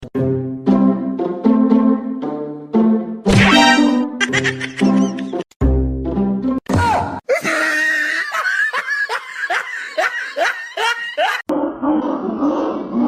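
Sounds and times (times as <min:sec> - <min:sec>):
person laughing hard: 0:04.2 - 0:05.4, 0:07.3 - 0:11.5.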